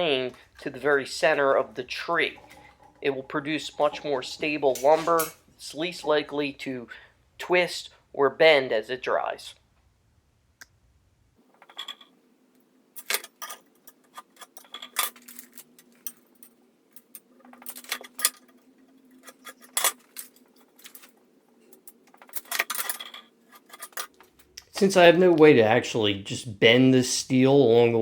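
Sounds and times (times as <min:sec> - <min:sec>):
faint steady hum: 0:00.0 - 0:28.0
steel tools clinking: 0:11.6 - 0:12.1, 0:13.0 - 0:24.6.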